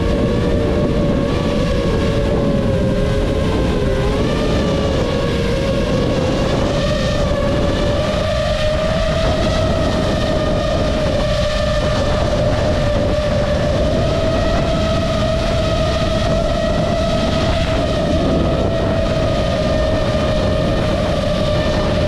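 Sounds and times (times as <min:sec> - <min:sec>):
drone motors whining: 0:00.0 - 0:22.0
wind buffeting microphone: 0:00.0 - 0:22.0.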